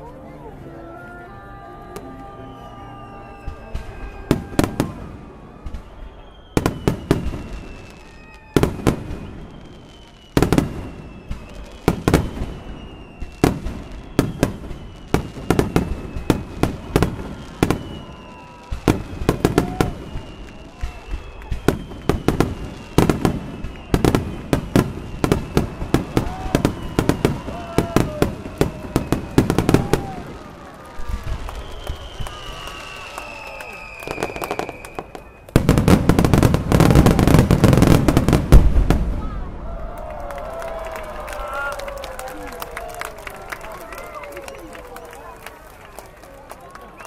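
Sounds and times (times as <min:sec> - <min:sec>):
falling firework whistles: 0:02.4 - 0:39.4
fireworks bangs: 0:03.0 - 0:45.3.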